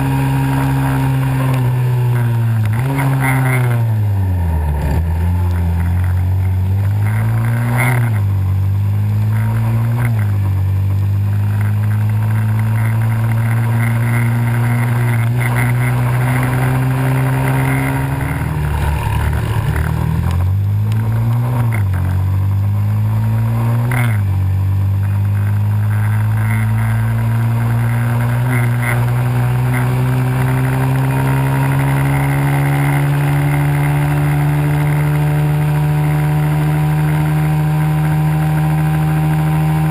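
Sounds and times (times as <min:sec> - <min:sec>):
small motorbike engine revving: 0:00.0 - 0:39.9.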